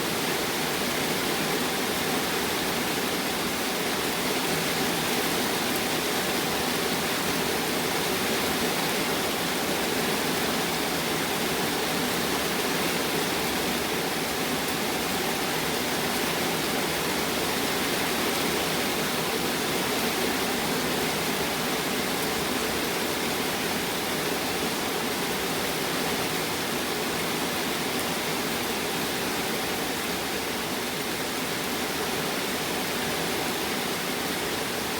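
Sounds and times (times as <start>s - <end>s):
rain falling steadily: 0.0s - 34.9s.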